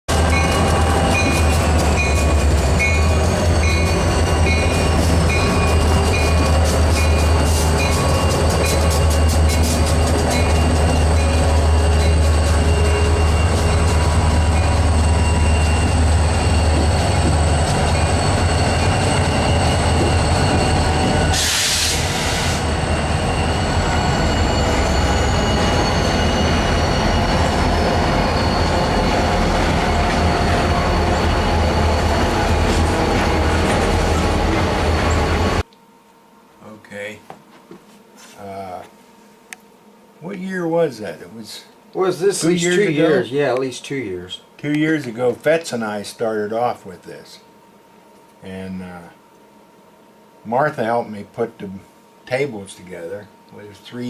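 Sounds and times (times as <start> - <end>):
wheel and track noise: 0.1 - 35.7
brief hiss: 21.4 - 22.6.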